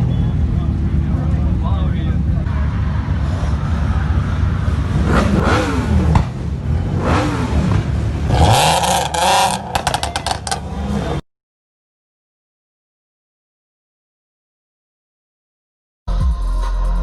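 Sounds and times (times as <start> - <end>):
car engines revving: 0.0 - 11.2
loud rush of noise: 0.2 - 11.2.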